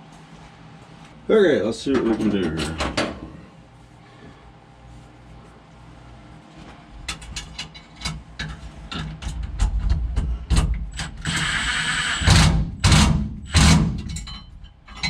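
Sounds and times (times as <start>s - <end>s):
power tool running: 11.2s - 13.9s.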